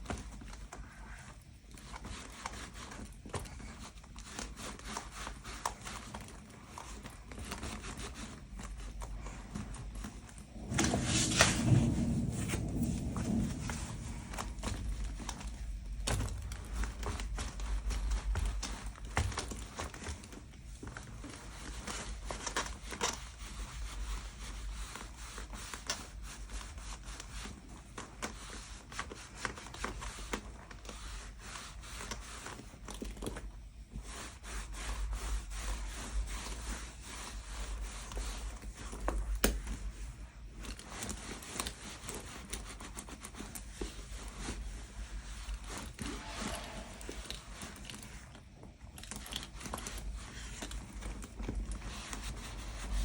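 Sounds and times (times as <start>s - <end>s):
hands rubbing leather: 0.0s - 53.0s.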